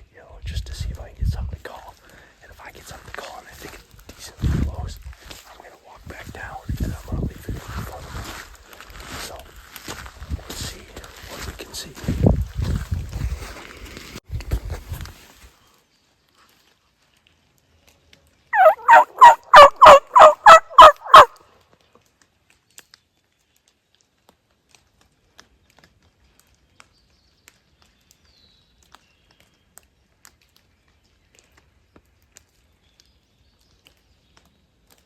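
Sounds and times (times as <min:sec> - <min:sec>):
turkey call yelping: 0:18.6 - 0:21.4.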